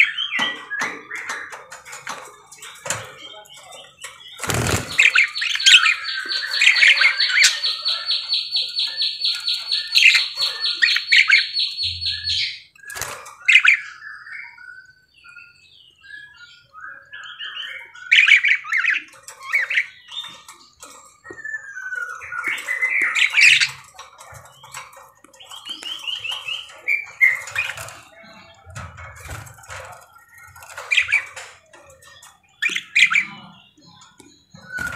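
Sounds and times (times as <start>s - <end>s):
budgerigar chattering and squawking: 32.6s - 33.8s.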